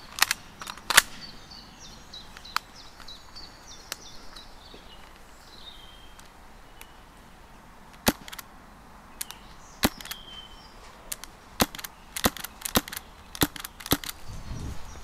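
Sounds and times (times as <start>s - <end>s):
clicks and knocks in undergrowth: 0.0s - 1.3s, 9.2s - 14.4s
bird chirping and trilling: 0.7s - 7.1s, 9.1s - 15.0s.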